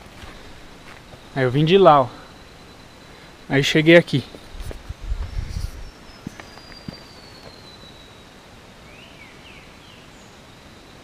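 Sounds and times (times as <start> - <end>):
faint birdsong whistle: 5.1 - 11.0.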